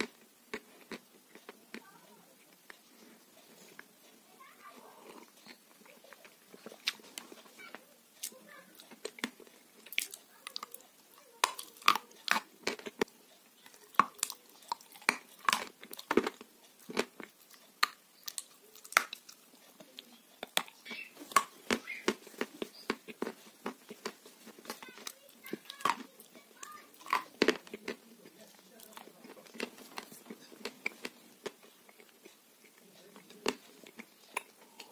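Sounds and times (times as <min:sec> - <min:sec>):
person chewing food: 0:00.0 - 0:34.9
mouth smacks and clicks: 0:04.9 - 0:34.9.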